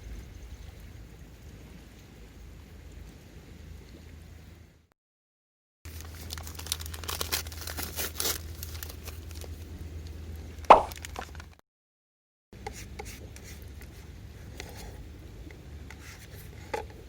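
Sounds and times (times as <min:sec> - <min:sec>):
sharp loud knock: 0:10.7 - 0:10.9.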